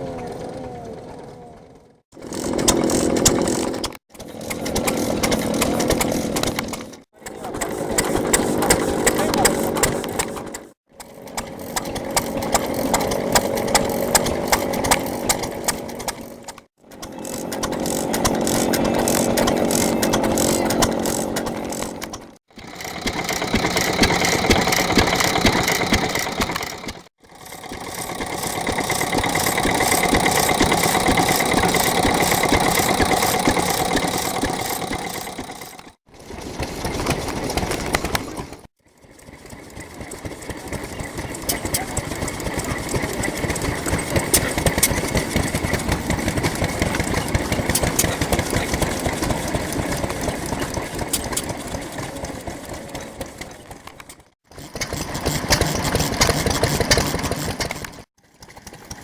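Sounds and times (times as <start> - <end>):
stationary engine running: 0.0 - 59.0.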